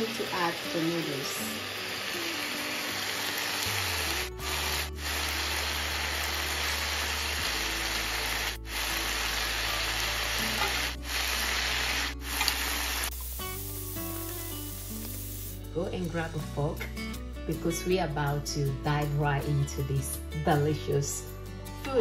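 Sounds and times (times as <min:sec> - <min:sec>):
stir-fry sizzling in a pan: 0:00.0 - 0:15.7
background music: 0:00.0 - 0:22.0.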